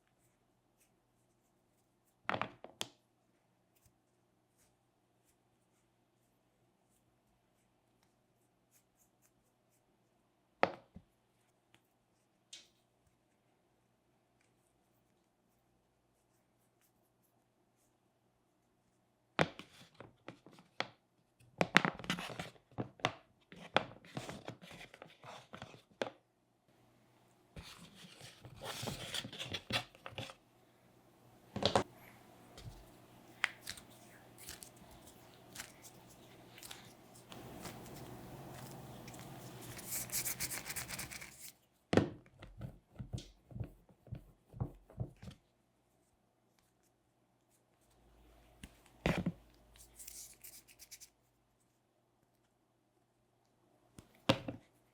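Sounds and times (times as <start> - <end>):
hands rubbing clay: 32.0 - 41.6
tool scraping clay: 33.5 - 41.5.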